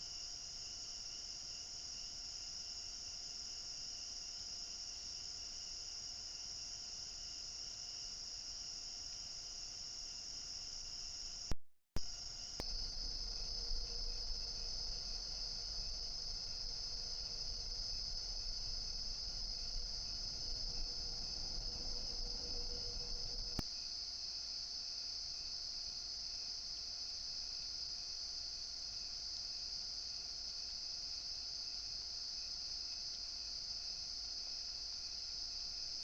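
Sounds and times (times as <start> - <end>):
insects trilling: 0.0 - 36.0
low rumble: 12.6 - 23.6.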